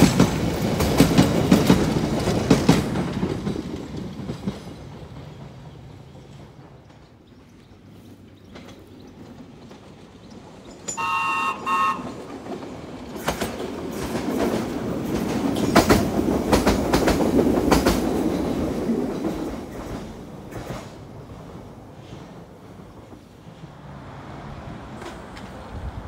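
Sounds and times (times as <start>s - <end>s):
wheels clicking over rail joints: 0.0s - 23.5s, 24.6s - 26.0s
train passing close by: 0.0s - 26.0s
train horn blasts: 10.9s - 12.3s.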